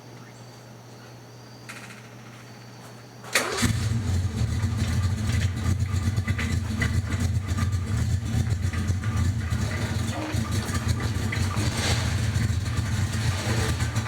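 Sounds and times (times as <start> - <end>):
car engine starting and running: 3.4 - 14.0.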